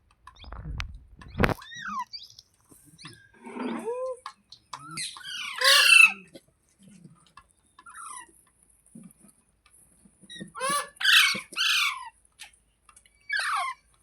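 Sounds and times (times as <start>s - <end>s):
parrot calling and squawking: 3.0s - 6.4s, 10.4s - 12.2s, 13.2s - 13.9s.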